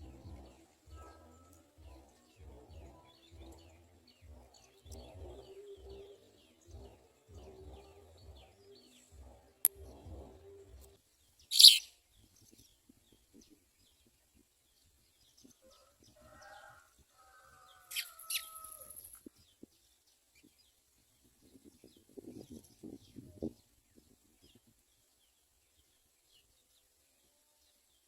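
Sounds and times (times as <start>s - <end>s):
low pulsing sound: 0.0s - 11.0s
sparrow chirping: 0.0s - 14.0s, 17.9s - 19.2s.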